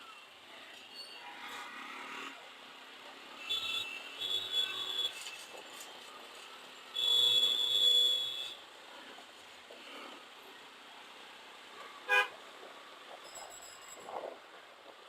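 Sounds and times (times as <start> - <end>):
low hiss of traffic: 0.0 - 15.0
vehicle horns honking: 7.0 - 8.6, 12.1 - 12.3.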